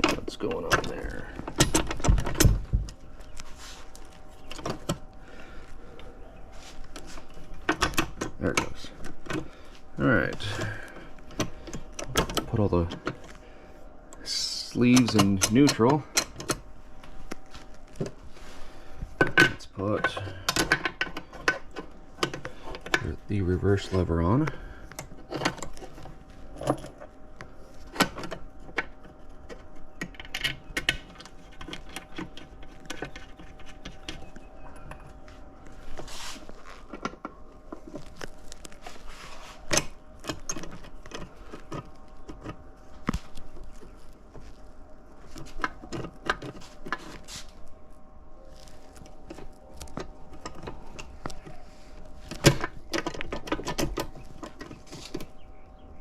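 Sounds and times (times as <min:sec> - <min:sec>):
metal parts and tools clinking: 0:00.0 - 0:03.4
faint steady hum: 0:00.0 - 0:56.0.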